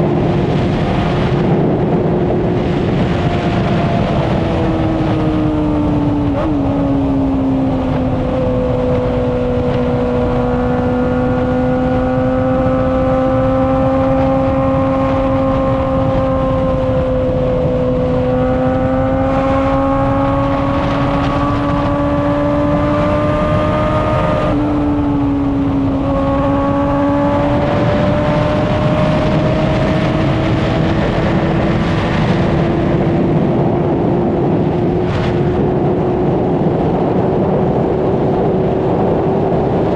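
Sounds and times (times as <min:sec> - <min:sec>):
motorcycle engine revving high: 0:00.0 - 0:39.9
wind noise: 0:00.0 - 0:39.9.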